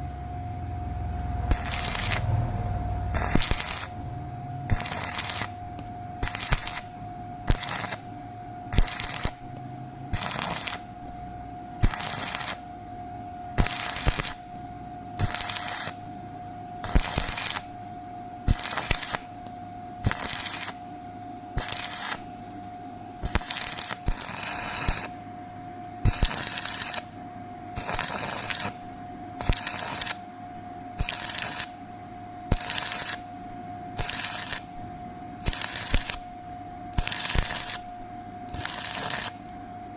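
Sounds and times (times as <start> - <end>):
steady hum: 0.0 - 39.9
welding arc crackling: 1.5 - 2.3, 3.1 - 4.1, 4.7 - 8.1, 8.7 - 9.4, 10.1 - 11.2, 11.8 - 12.7, 13.5 - 14.5, 15.2 - 16.0, 16.8 - 17.8, 18.5 - 19.4, 20.0 - 20.8, 21.6 - 22.3, 23.2 - 25.1, 26.0 - 27.1, 27.8 - 28.8, 29.4 - 30.2, 31.0 - 31.8, 32.5 - 33.2, 33.9 - 34.7, 35.4 - 36.3, 37.0 - 37.9, 38.5 - 39.5.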